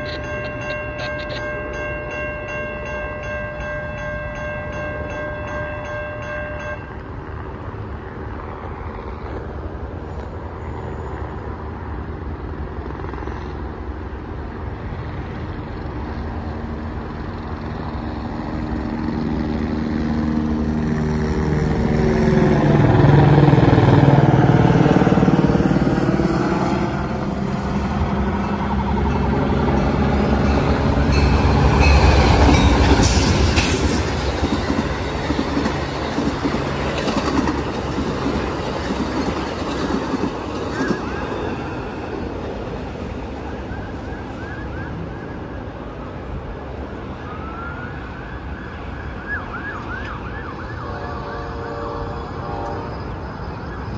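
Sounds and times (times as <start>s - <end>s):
multi-tone train horn: 0.0s - 7.0s, 49.7s - 53.7s
steady high ringing: 0.0s - 8.0s, 28.3s - 36.9s, 50.9s - 53.9s
passenger train approaching: 0.0s - 53.9s.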